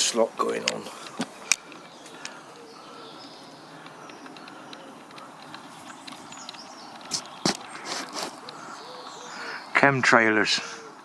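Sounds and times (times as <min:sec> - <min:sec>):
sharp clicks: 0:00.6 - 0:09.1
faint bird calls: 0:00.8 - 0:11.0.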